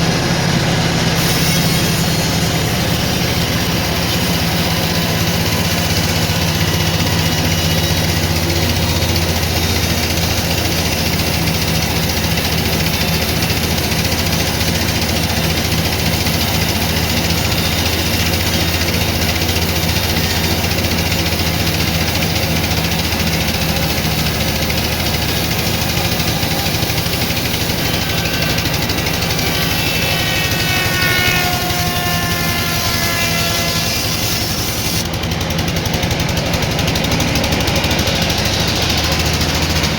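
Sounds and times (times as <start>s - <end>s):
sawmill machinery running: 0.0s - 39.9s
low engine hum: 35.0s - 39.9s.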